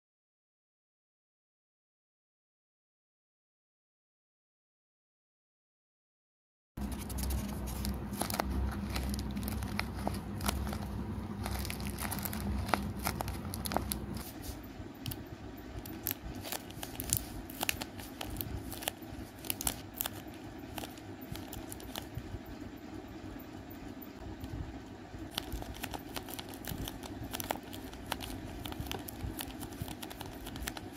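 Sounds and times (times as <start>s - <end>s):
paper and tape crinkling: 6.8s - 15.2s, 15.8s - 22.1s, 25.3s - 30.9s
low hum: 6.8s - 30.9s.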